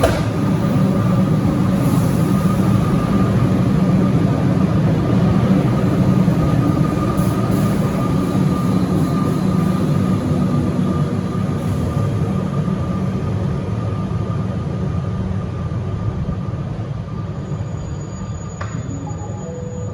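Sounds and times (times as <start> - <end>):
electric train rumbling: 0.0 - 19.9
faint high-pitched tone: 18.8 - 19.9.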